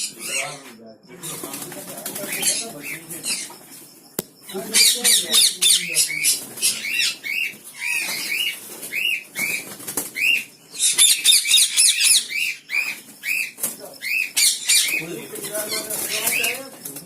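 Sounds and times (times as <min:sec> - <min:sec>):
parrots squawking: 0:00.0 - 0:16.8.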